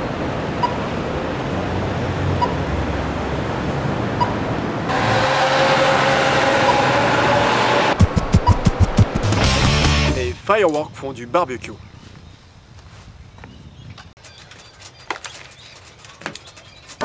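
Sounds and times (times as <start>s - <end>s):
vehicle engine drone: 0.0s - 10.4s
street traffic noise: 0.0s - 11.0s, 13.9s - 17.0s
sharp low thumps: 7.9s - 10.2s.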